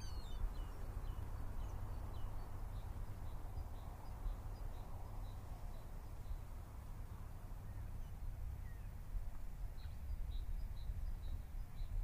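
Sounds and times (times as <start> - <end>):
faint bird chirps: 0.0 - 6.4.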